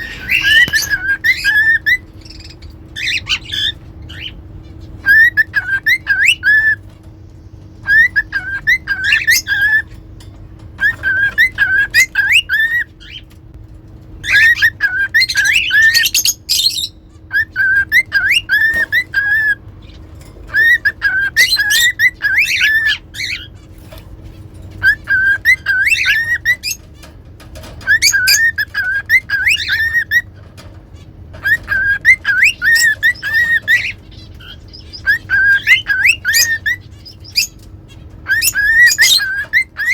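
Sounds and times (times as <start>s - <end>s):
cockatiel whistling a tune: 0.0s - 4.4s, 5.0s - 6.9s, 7.8s - 9.9s, 10.8s - 13.2s, 14.2s - 19.6s, 20.5s - 23.5s, 24.8s - 26.8s, 27.8s - 30.3s, 31.4s - 37.6s, 38.2s - 39.9s
high bird chirps: 0.0s - 13.4s, 14.2s - 39.9s.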